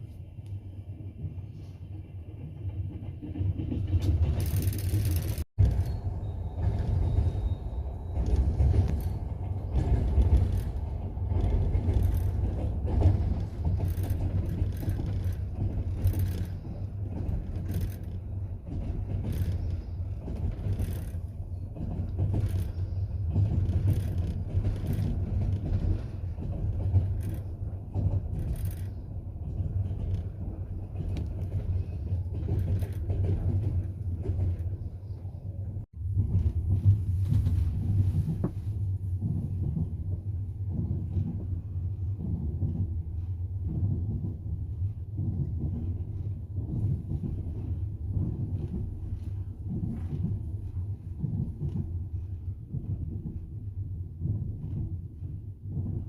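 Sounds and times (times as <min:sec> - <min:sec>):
train rumbling: 0:00.0 - 0:56.0
wheels clacking over rail joints: 0:02.2 - 0:35.2.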